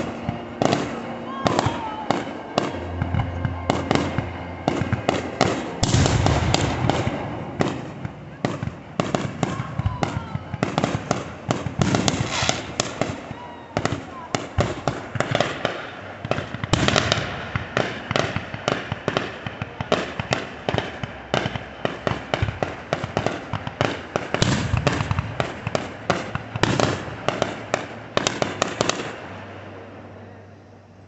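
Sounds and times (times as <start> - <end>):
fireworks bangs and crackles: 0.0 - 30.2.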